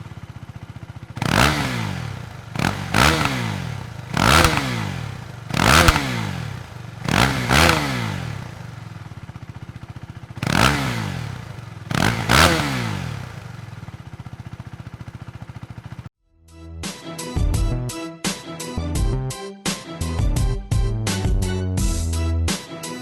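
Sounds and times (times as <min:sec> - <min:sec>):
motorcycle engine revving and idling: 0:00.0 - 0:16.1.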